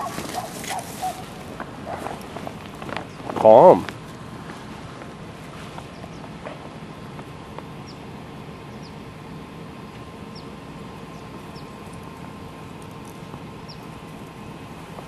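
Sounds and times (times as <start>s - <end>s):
faint constant hum: 0.0s - 15.0s
steady rumble: 0.0s - 15.0s
bird chirping: 2.9s - 3.4s, 5.8s - 6.4s, 7.8s - 9.1s, 9.8s - 12.0s, 13.2s - 14.0s.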